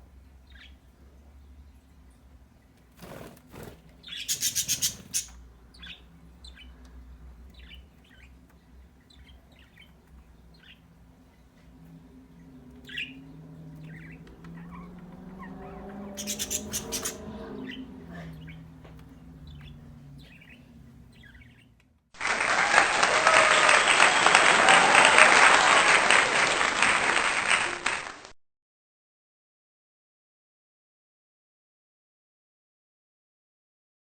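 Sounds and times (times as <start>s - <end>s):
faint low hum: 0.0s - 22.1s
pet birds chirping: 0.2s - 21.9s.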